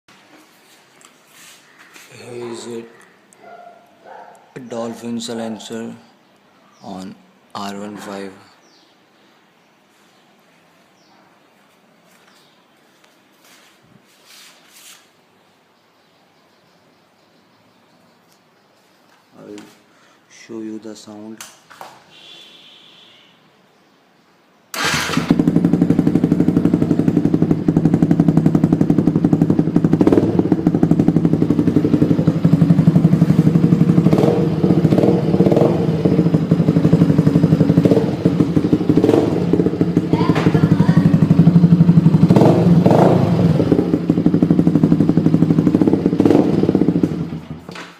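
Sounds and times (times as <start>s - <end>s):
motorcycle engine running and revving: 24.8s - 47.7s.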